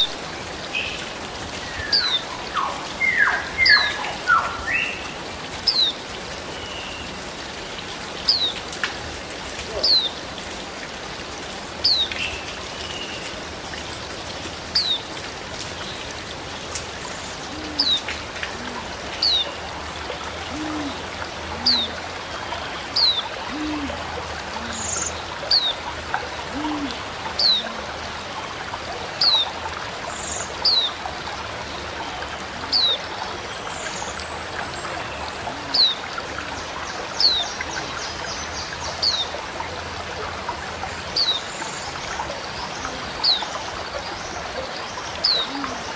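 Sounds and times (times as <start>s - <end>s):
running water hiss: 0.0s - 45.9s.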